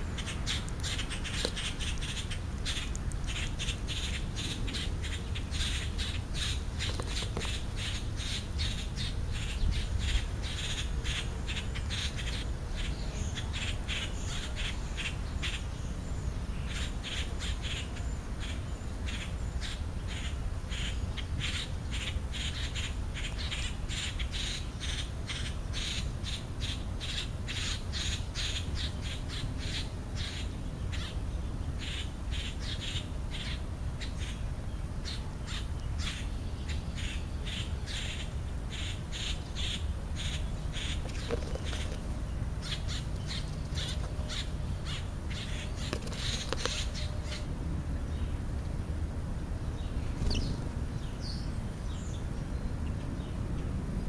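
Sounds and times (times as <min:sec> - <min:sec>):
bird chirping: 0:00.0 - 0:48.4, 0:49.6 - 0:53.7
steady low rumble: 0:28.8 - 0:54.0.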